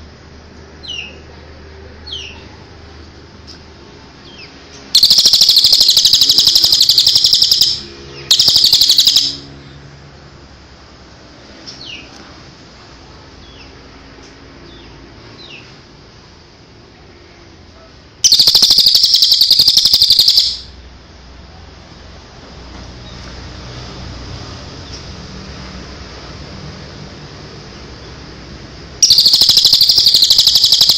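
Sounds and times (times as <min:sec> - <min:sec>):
songbird chirps: 0:04.2 - 0:09.5, 0:18.2 - 0:20.7, 0:29.0 - 0:30.9
rapid bird trill: 0:04.4 - 0:09.6, 0:18.2 - 0:20.8, 0:29.0 - 0:30.9.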